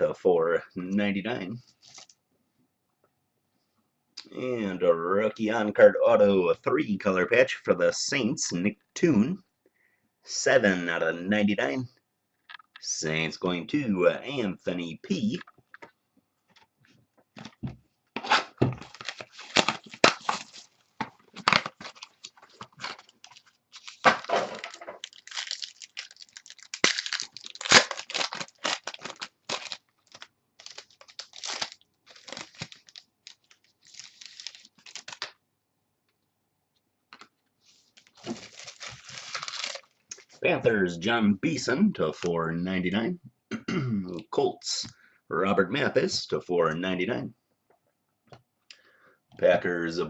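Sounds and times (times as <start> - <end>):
wrappers tearing and crinkling: 18.3 - 35.3, 38.0 - 40.3.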